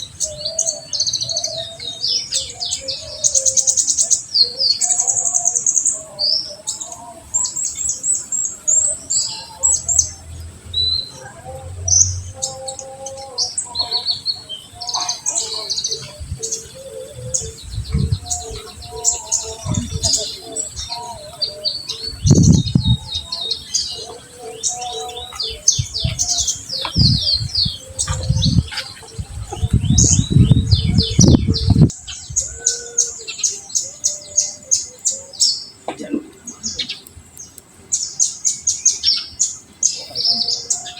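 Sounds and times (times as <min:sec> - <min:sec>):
bird singing high chirps: 0:00.0 - 0:35.8
low rumbles: 0:09.1 - 0:13.6, 0:16.1 - 0:23.6, 0:25.4 - 0:32.6.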